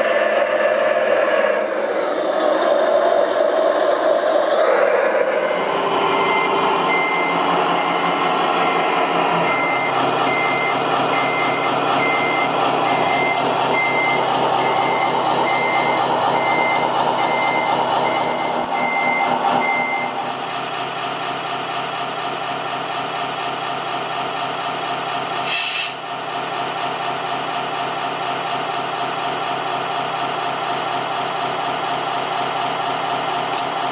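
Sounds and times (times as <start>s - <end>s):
reversing beeper: 4.8s - 20.6s.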